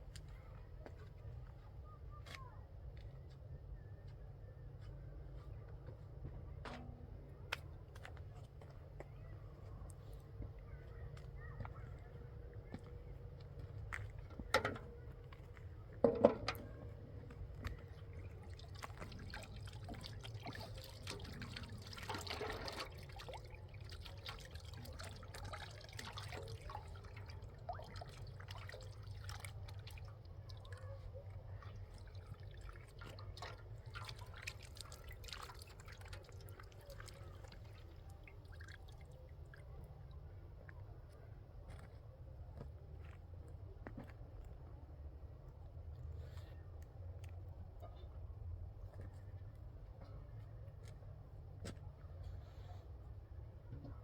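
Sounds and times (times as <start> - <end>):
low steady hum: 0.0 - 54.0
liquid pouring: 16.0 - 39.7.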